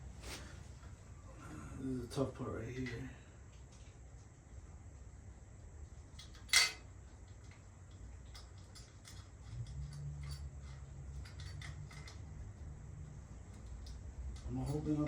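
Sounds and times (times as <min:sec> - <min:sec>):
small metal parts clinking: 0:06.2 - 0:12.6.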